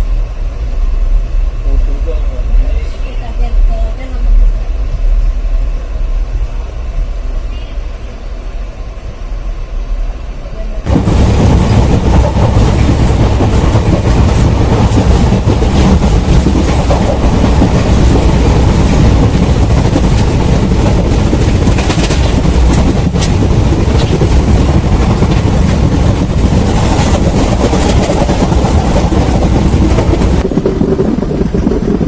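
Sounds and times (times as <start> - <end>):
train running on rails: 0.0 - 32.0
wheels clacking over rail joints: 10.9 - 32.0.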